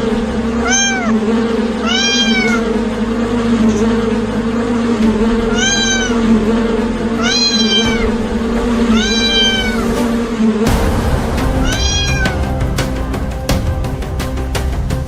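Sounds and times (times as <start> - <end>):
steady low hum: 0.0 - 15.0
kitten meowing: 0.6 - 1.2, 1.8 - 2.6, 5.5 - 6.2, 7.2 - 8.1, 8.9 - 9.9.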